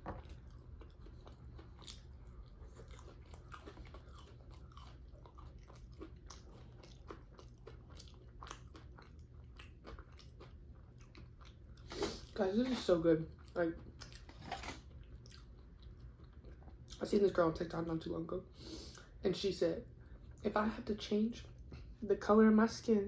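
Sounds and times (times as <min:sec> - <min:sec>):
person chewing: 0:00.0 - 0:17.0.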